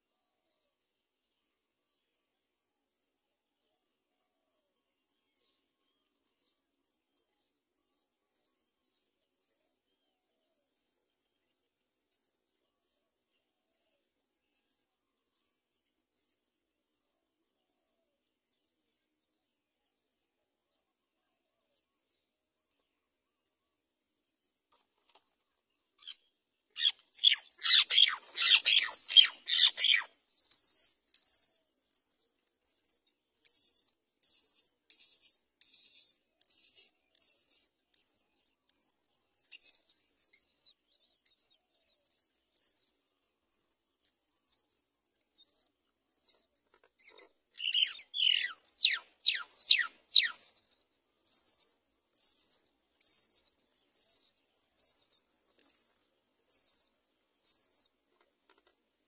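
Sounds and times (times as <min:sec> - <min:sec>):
harsh rapid bird calls: 0:26.8 - 0:40.7, 0:46.2 - 0:57.9
nestlings begging calls: 0:26.8 - 0:40.7, 0:47.0 - 0:57.8.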